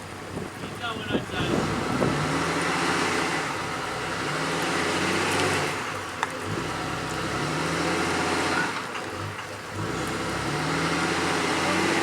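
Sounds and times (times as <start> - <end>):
rush of wind or water: 0.0 - 5.9.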